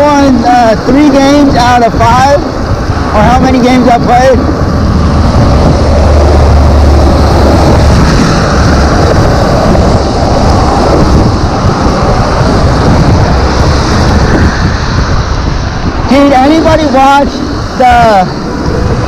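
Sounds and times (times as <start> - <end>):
wind rumble on microphone: 0.0 - 19.0
rain on wet road: 6.6 - 17.8.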